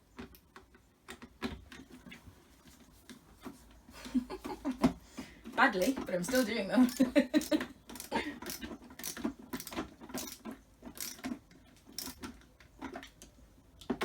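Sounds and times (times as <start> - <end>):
screwdriver turning screws into plastic: 5.8 - 12.4.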